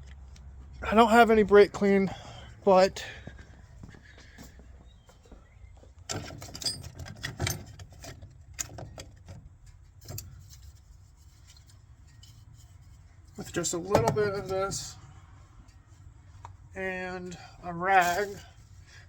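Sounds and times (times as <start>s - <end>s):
low steady hum: 4.9s - 19.0s
tools clicking and rattling: 6.1s - 10.8s.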